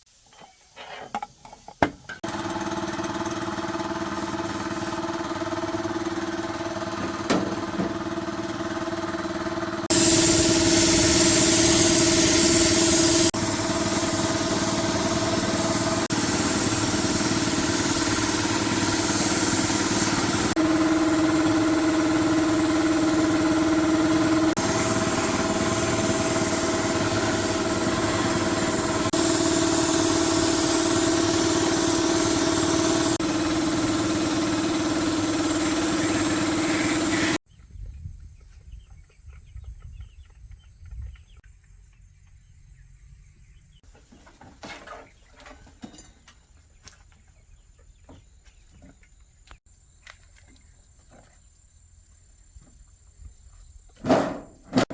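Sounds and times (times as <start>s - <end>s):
machine humming and whirring: 2.3s - 37.4s.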